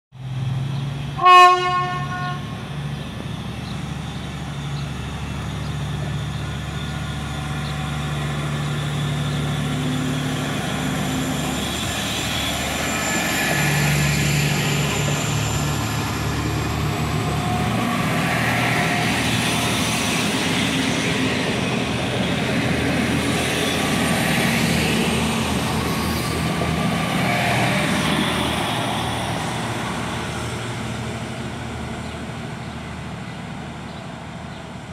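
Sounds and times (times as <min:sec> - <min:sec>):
diesel train engine humming: 0:00.2 - 0:34.9
train wheels rolling on rails: 0:02.5 - 0:34.9.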